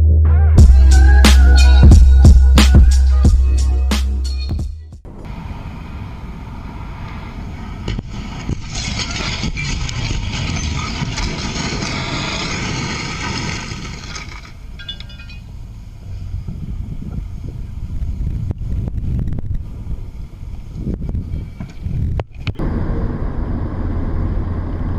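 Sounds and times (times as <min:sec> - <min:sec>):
music: 0:00.0 - 0:05.0
road and wind noise of moving vehicle: 0:05.0 - 0:24.9.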